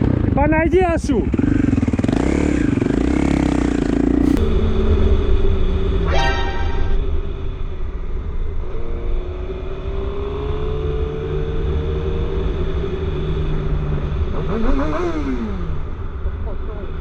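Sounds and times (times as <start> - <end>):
low wind rumble: 4.2 - 9.8.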